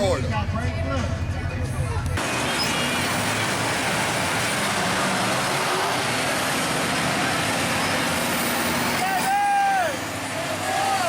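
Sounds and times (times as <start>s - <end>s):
truck engine running: 0.1s - 11.0s
rushing noise: 2.2s - 11.0s.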